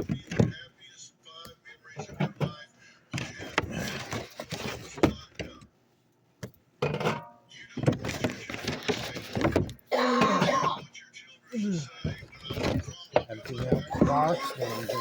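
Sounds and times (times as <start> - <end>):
drink cans clunking: 6.8 - 10.9, 12.1 - 15.0.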